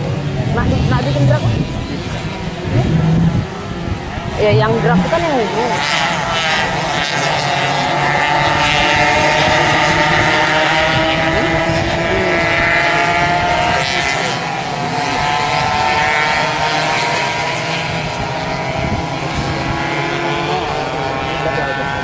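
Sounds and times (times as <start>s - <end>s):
racing motorcycles at high revs: 0.0s - 22.0s.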